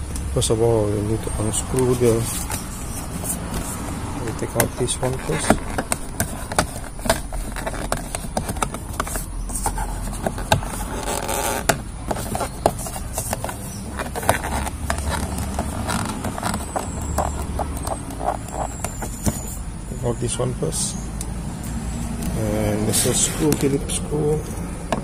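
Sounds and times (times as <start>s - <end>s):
plastic clicks taps and scraping: 1.6s - 19.6s, 24.5s - 25.0s.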